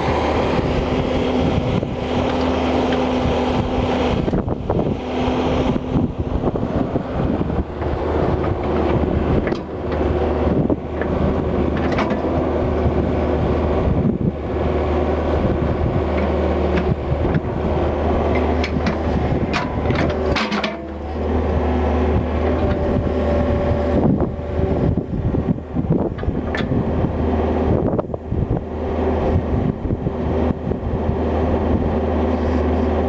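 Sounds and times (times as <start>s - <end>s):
excavator diesel engine: 0.0s - 33.0s
metallic clanks and rattles: 18.3s - 21.2s.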